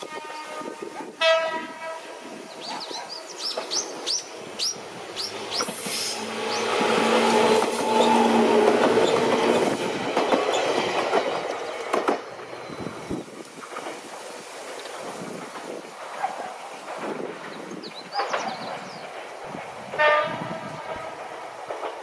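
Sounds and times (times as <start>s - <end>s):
electric train rumbling past: 0.0s - 22.0s
wheels clicking over rail joints: 21.1s - 22.0s.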